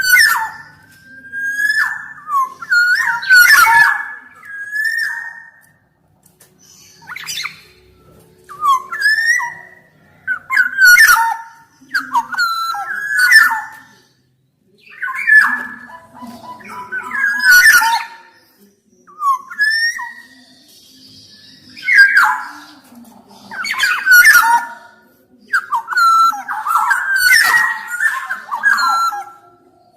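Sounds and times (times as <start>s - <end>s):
bird singing fluty whistles: 0.0s - 5.6s, 8.5s - 14.0s, 19.1s - 22.8s.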